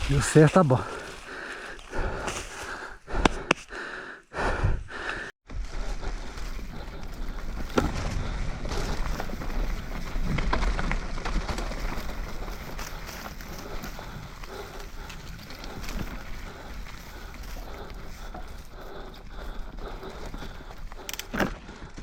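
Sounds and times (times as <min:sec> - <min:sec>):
bike tyre and wind rumble: 0:00.0 - 0:22.0
bike clicks and knocks: 0:20.1 - 0:22.0.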